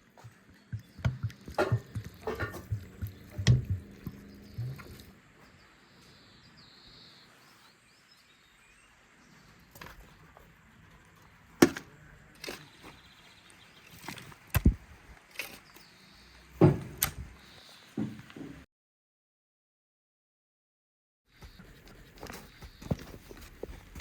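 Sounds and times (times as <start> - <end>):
faint birdsong: 0.0 - 18.7, 21.3 - 24.0
knocks and taps of food preparation: 0.2 - 4.8.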